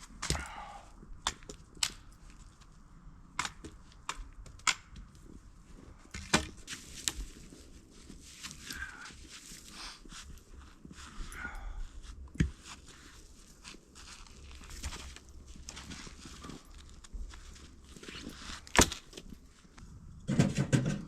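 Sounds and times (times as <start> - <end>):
sharp snaps and knocks: 1.2 - 2.6, 3.4 - 5.1, 18.6 - 19.4.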